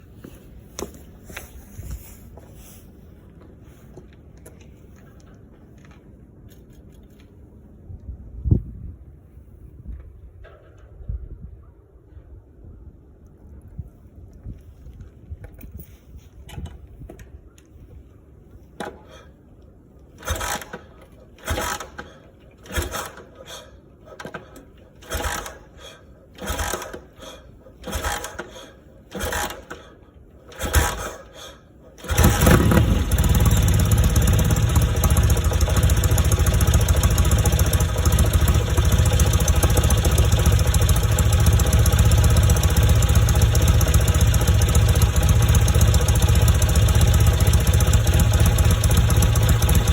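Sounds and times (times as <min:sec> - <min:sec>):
motorcycle engine cold start: 0:20.2 - 0:49.9.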